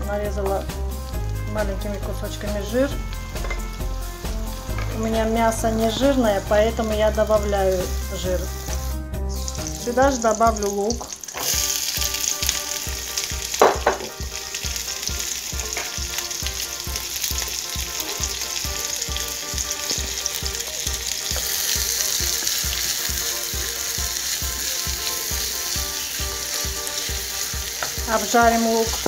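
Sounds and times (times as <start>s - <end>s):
onion sizzling in a pan: 0.0s - 29.0s.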